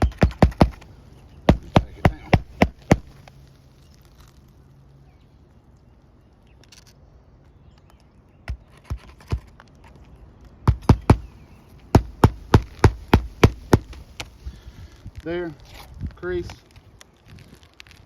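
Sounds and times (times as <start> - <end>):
hammer striking roofing nails: 0.0 - 0.8, 1.5 - 3.2, 10.7 - 14.3.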